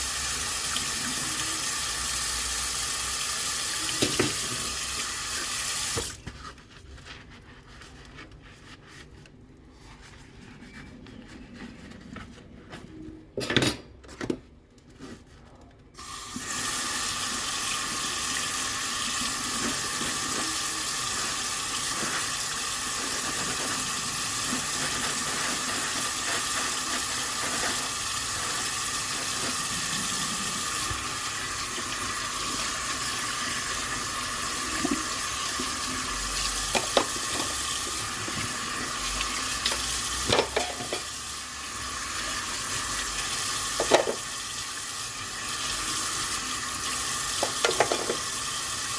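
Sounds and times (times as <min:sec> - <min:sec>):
tap water running into sink: 0:00.0 - 0:06.2, 0:16.0 - 0:48.9
dishes clinking: 0:40.3 - 0:41.1, 0:47.4 - 0:48.2.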